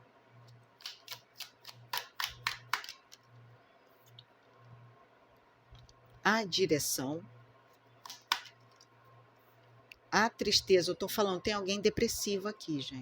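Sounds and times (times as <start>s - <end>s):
faint low hum: 0.0s - 13.0s
playing cards snapping: 0.8s - 3.2s, 8.0s - 8.6s.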